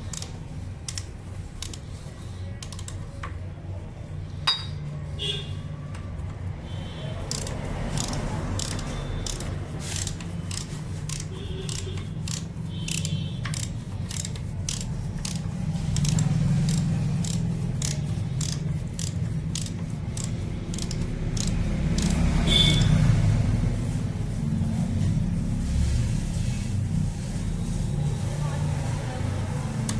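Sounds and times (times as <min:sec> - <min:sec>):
hand tools clicking on metal: 0:07.2 - 0:22.2.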